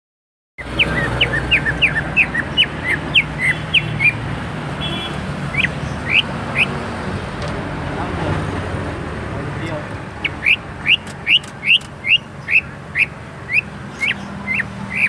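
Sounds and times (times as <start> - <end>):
bird singing whistled notes: 10.2 - 15.0.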